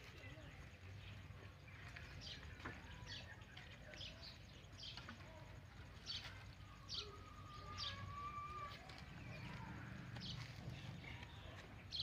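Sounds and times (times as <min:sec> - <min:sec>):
wild bird chirps: 0:05.9 - 0:12.0.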